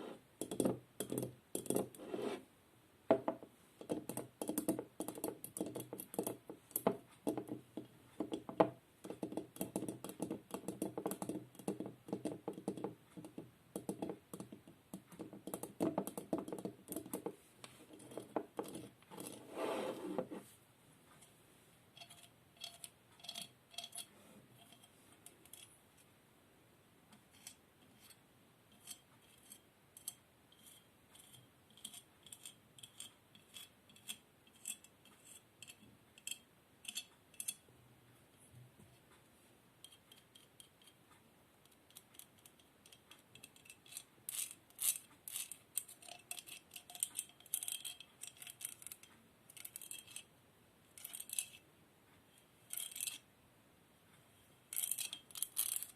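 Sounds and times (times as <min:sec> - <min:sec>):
tapping on small hard objects: 0:03.1 - 0:17.4.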